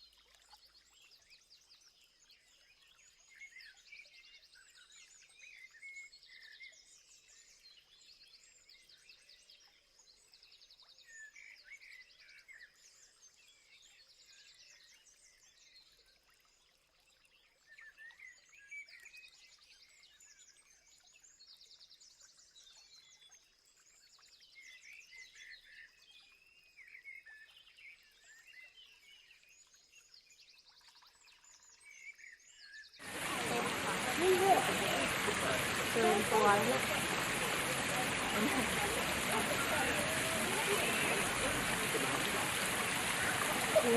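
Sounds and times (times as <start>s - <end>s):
wild birds chirping and trilling: 31.1s - 43.9s.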